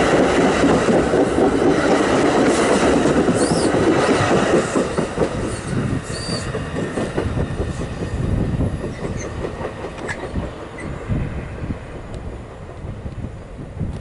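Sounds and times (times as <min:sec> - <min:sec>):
train wheels clattering on rails: 0:00.0 - 0:14.0
high wheel squeal: 0:05.5 - 0:06.5, 0:10.1 - 0:11.0.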